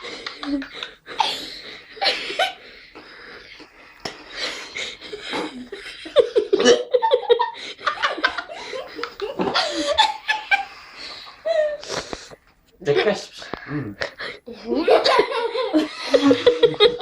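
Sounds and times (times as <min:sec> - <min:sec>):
people laughing: 0:00.0 - 0:01.0, 0:04.4 - 0:10.8, 0:14.6 - 0:17.0
giggling and snickering: 0:00.0 - 0:02.8, 0:04.3 - 0:12.1, 0:13.8 - 0:17.0.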